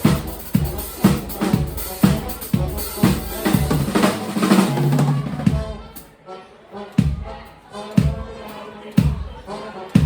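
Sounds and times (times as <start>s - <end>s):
bass drum beats: 0.0s - 6.0s, 7.0s - 7.4s, 8.0s - 8.4s, 9.0s - 10.0s
live band music: 0.0s - 10.0s.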